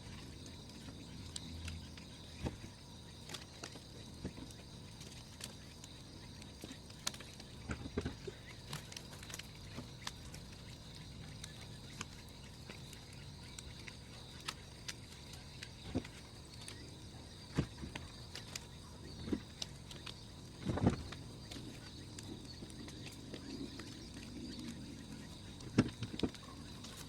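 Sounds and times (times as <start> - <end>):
bonfire crackling and popping: 0.0 - 27.0.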